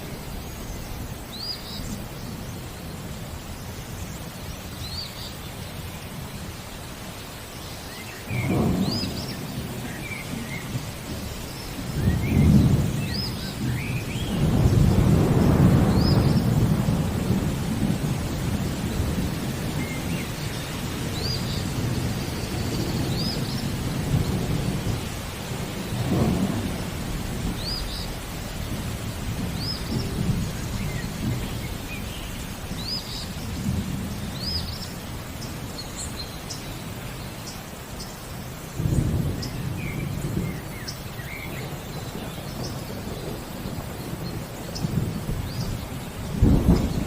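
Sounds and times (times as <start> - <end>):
steady rain: 0.0 - 47.0
rolling thunder: 8.2 - 35.7, 38.4 - 47.0.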